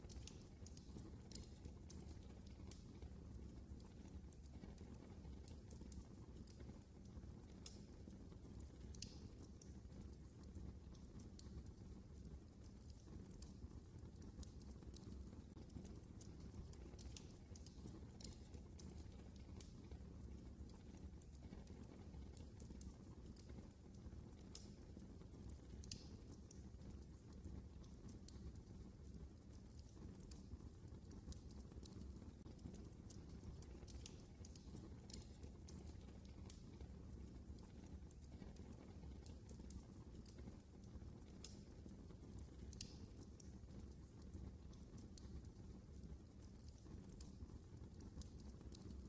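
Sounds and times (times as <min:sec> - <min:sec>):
wood fire crackling: 0:00.0 - 0:49.0.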